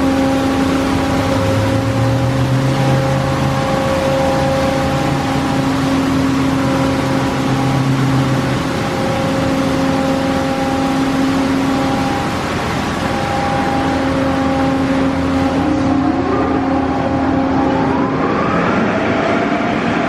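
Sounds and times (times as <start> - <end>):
car wash rushing noise: 0.0 - 20.0
machine whir and hum: 0.0 - 20.0.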